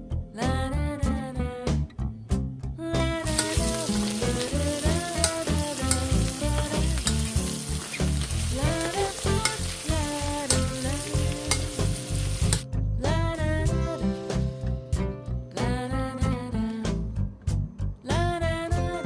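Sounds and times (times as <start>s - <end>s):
background music: 0.0s - 19.0s
food sizzling in a pan: 3.3s - 12.6s.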